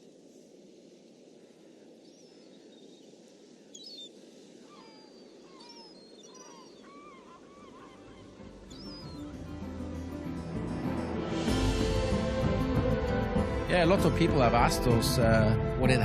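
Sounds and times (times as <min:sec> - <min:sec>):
birds chirping and squawking: 0:04.7 - 0:09.8
music: 0:08.0 - 0:16.0
low rushing noise: 0:08.5 - 0:16.0.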